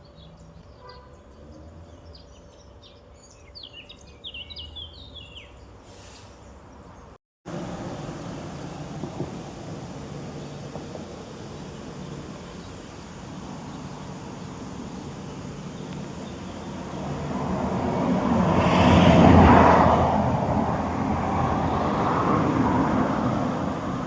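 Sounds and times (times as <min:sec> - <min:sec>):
road vehicle passing: 0:07.5 - 0:24.0.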